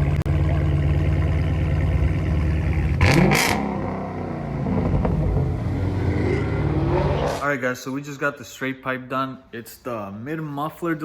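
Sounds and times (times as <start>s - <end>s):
car engine idling and revving: 0.0s - 7.4s.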